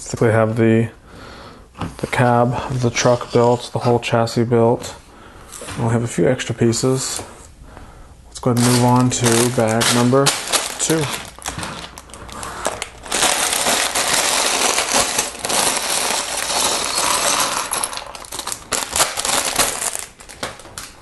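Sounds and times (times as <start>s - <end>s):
plastic bag crinkling: 8.4s - 21.0s
plastic bricks rattling: 8.6s - 20.6s.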